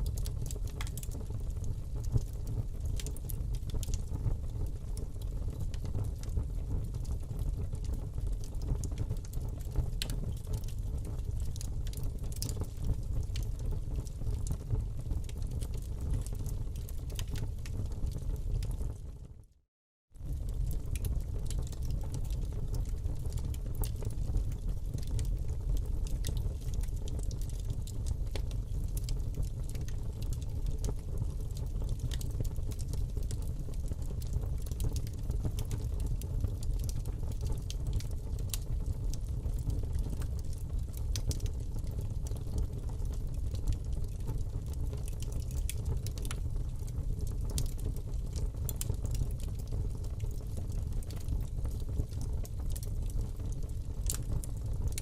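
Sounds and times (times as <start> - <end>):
fire crackling in fireplace: 0.0 - 19.6, 20.2 - 55.0.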